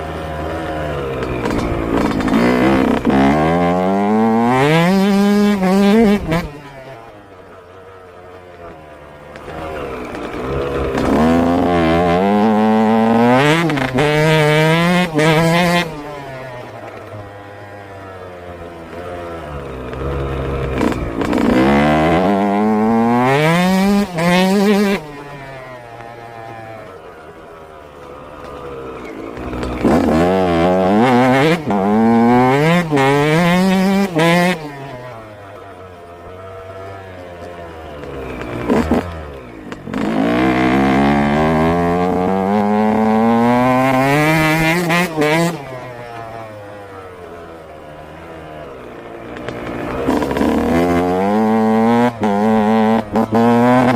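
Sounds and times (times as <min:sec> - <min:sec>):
two-stroke engine revving: 0:00.0 - 0:07.3, 0:09.3 - 0:27.0, 0:28.1 - 0:35.6, 0:36.2 - 0:53.9.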